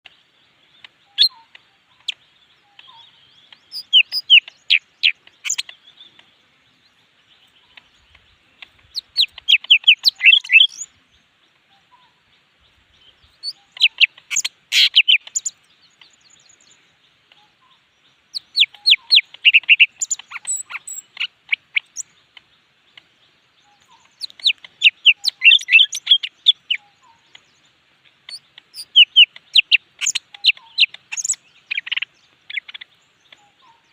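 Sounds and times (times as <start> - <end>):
bird singing rapid sweeping notes: 1.0 - 11.1, 13.1 - 22.4, 23.3 - 33.9.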